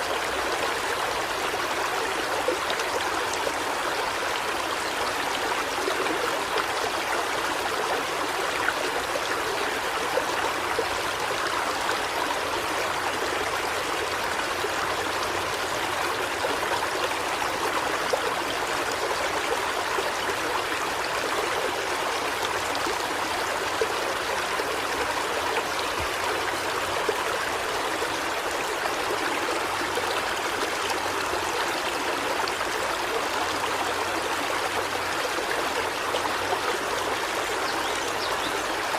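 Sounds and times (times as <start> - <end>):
river water flowing over rocks: 0.0 - 38.9.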